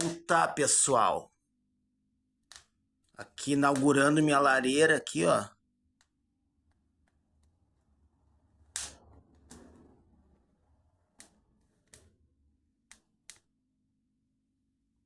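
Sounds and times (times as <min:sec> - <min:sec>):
wood fire crackling and popping: 0:03.4 - 0:04.3, 0:06.9 - 0:12.3.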